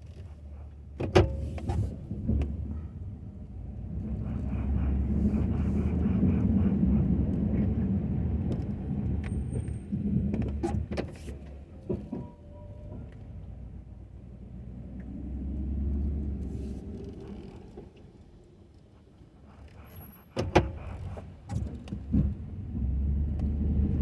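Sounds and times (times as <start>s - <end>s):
pickup truck engine running: 1.4s - 10.3s.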